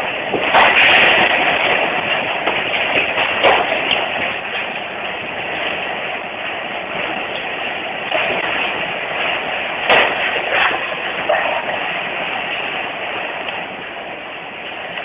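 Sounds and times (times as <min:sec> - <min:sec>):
earthquake rumble: 0:00.0 - 0:15.0
sharp bang: 0:09.9 - 0:10.8.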